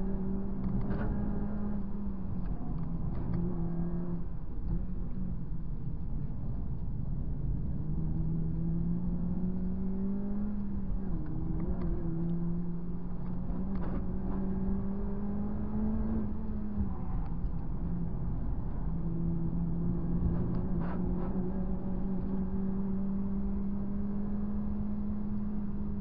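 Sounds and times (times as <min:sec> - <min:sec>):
road and tyre noise: 0:00.0 - 0:26.0
car engine revving: 0:07.4 - 0:26.0.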